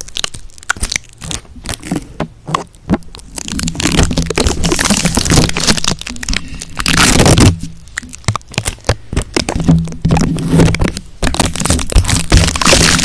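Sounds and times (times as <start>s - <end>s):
close crackling and scratching: 0.0s - 13.0s.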